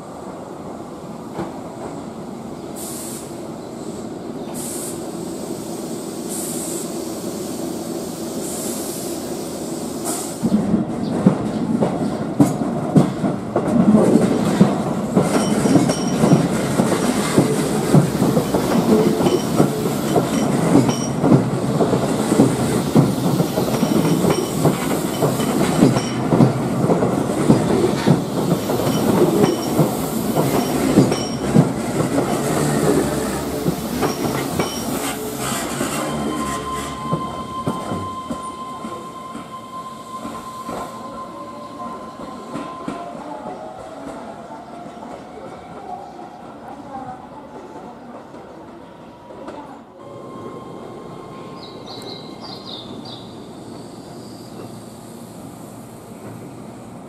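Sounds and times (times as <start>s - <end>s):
train rumble: 0.0s - 48.8s
wheel squeal: 34.1s - 43.1s.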